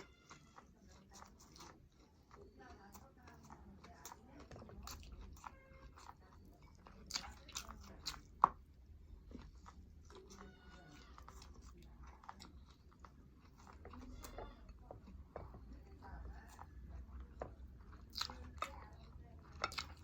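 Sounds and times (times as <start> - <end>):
person chewing food: 0.0 - 20.0.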